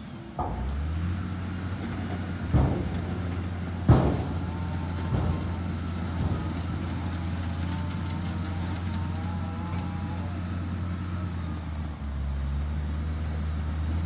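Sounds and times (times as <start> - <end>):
heavy diesel engine running: 0.0 - 14.0
metal clanks and knocks: 0.4 - 9.9.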